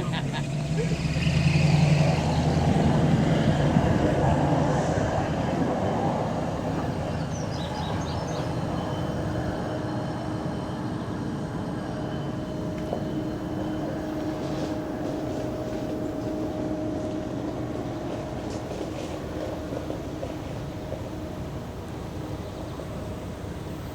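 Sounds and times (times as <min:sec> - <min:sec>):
freight train rumbling: 0:00.0 - 0:23.9.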